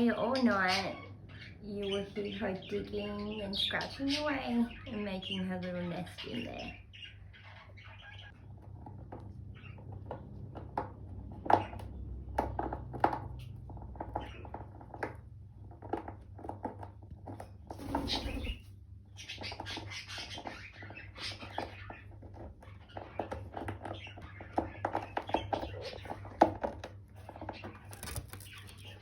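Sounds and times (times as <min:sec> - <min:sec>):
parrot scratching wood: 0:25.3 - 0:29.0.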